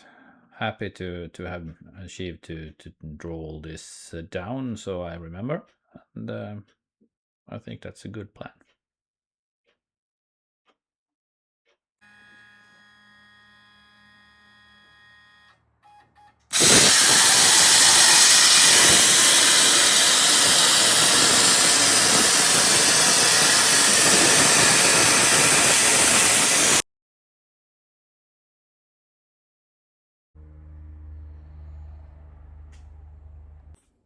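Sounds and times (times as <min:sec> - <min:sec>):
loud steady hiss of air: 0:16.5 - 0:26.8.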